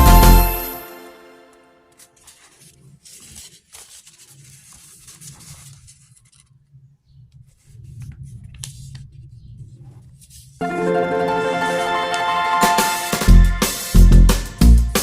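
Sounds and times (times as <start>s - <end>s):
paper rustling and crinkling: 1.9s - 6.7s
paper crease clicks: 2.0s - 6.6s.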